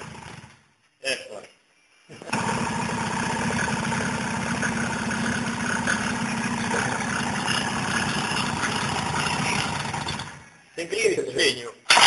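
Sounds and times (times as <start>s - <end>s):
small motorbike engine idling: 0.0s - 0.7s, 2.2s - 10.6s.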